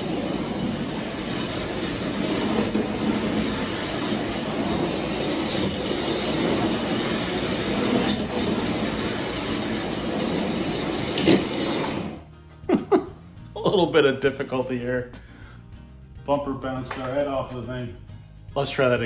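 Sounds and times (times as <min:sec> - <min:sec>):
toy train motor rattling: 0:00.0 - 0:12.2.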